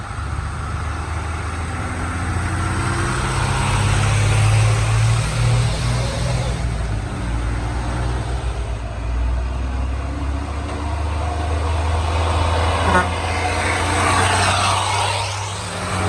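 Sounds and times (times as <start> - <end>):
truck diesel engines: 0.0 - 16.0
broad rushing noise: 11.1 - 16.0
short horn toot: 12.8 - 13.6.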